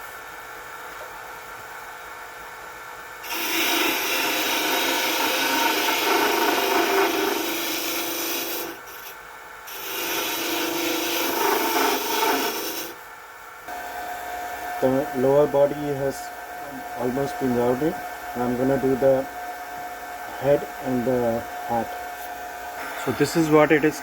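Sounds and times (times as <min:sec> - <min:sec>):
wood lathe humming: 0:03.2 - 0:13.0, 0:13.7 - 0:24.0
turning tool scraping wood: 0:03.3 - 0:13.0.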